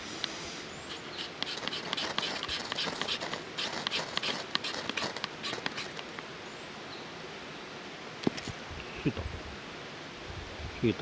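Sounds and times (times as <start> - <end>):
knife scraping wood: 0.8 - 6.2.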